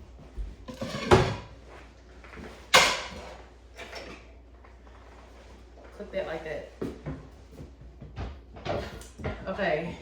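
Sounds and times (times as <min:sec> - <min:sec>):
sharp kitchen clunks: 0:02.7 - 0:03.3.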